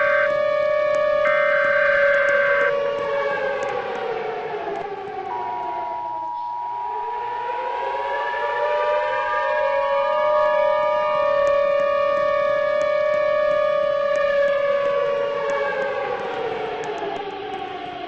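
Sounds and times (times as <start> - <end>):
tornado warning siren: 0.0 - 18.0.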